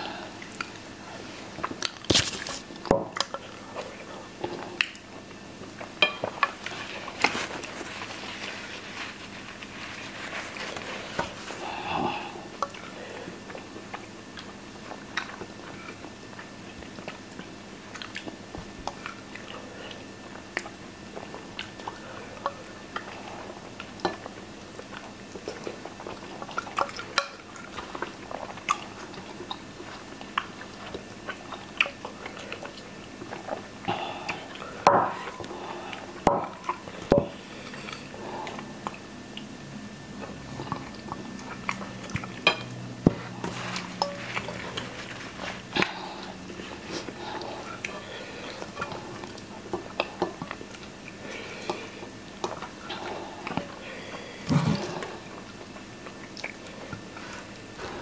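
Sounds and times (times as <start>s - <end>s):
chewing and biting food: 12.6s - 34.7s, 37.8s - 42.5s, 43.2s - 53.8s.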